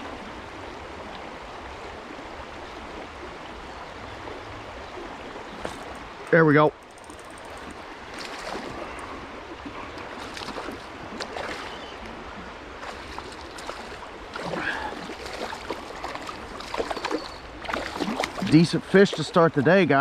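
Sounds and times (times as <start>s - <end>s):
creek water running: 0.0s - 20.0s
water splashing: 5.2s - 20.0s
small clicks: 6.8s - 7.8s.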